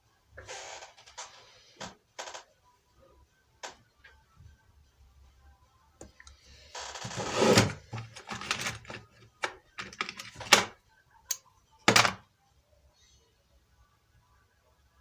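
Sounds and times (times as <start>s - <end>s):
hard objects scraping: 7.0s - 10.7s.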